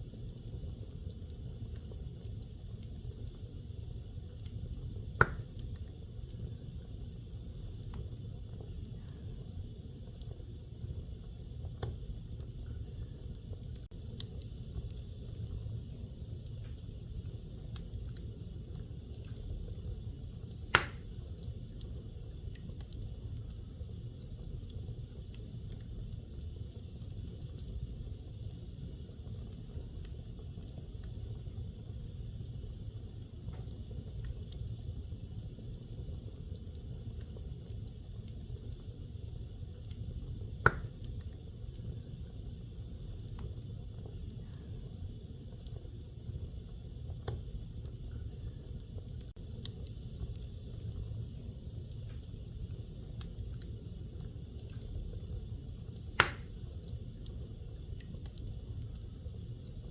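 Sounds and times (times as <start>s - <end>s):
wood fire crackling: 0.0s - 59.9s
loud sharp pop: 5.2s - 5.5s, 20.8s - 21.1s, 40.7s - 40.9s, 56.2s - 56.6s.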